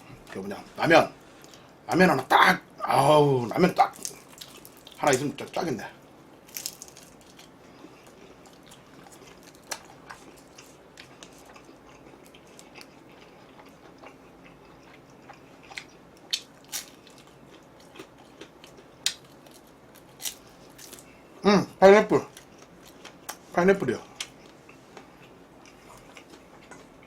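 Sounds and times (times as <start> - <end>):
food crunching: 3.7 - 5.6, 6.4 - 21.2, 22.2 - 27.0
person chewing food: 3.8 - 5.0, 6.5 - 21.2, 22.3 - 23.5, 24.1 - 27.0.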